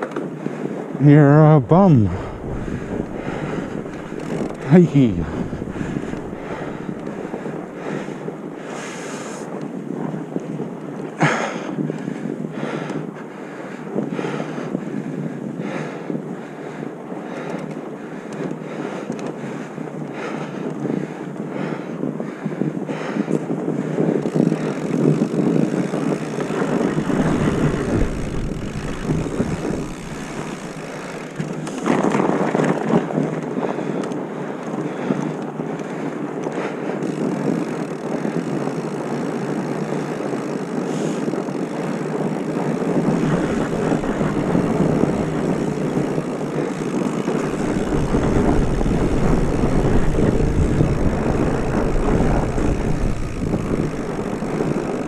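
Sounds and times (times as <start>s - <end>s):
wind rushing over microphone: 0.0s - 10.9s, 11.5s - 38.7s, 39.4s - 55.0s.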